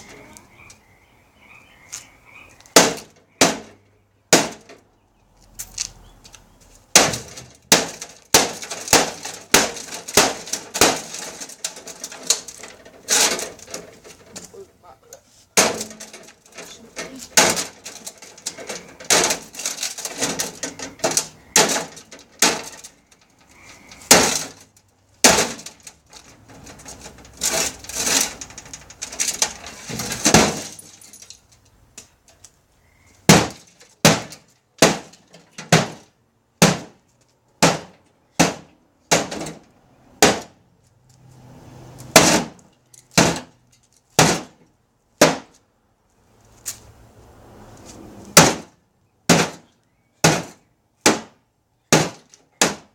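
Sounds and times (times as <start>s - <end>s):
hammer smashing microwave: 6.9s - 12.5s, 15.6s - 16.2s, 17.3s - 22.9s, 24.1s - 24.6s, 25.2s - 25.8s, 33.3s - 36.0s, 36.6s - 37.0s, 37.6s - 39.6s, 40.2s - 40.5s, 43.2s - 43.5s, 44.2s - 44.6s, 49.3s - 52.9s
glass and plastic cracking: 6.9s - 14.6s, 15.6s - 31.6s.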